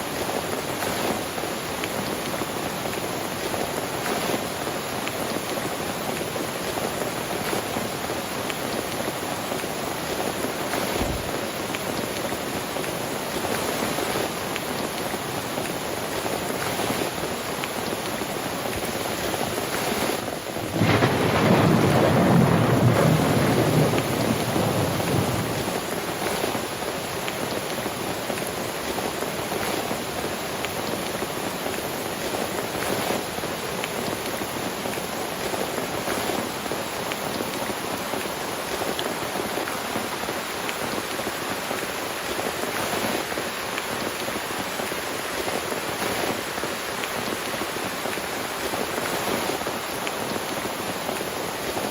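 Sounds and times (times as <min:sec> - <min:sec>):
heavy rain: 0:00.0 - 0:51.9
thunder rumble: 0:10.9 - 0:11.5, 0:20.6 - 0:26.3
rain drop ticks: 0:20.7 - 0:26.0.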